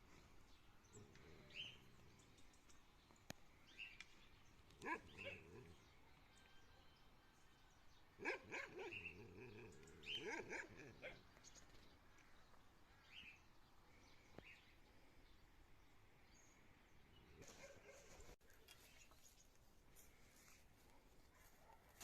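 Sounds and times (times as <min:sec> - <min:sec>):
dog barking: 0:04.8 - 0:05.8, 0:08.2 - 0:11.2, 0:21.3 - 0:22.0.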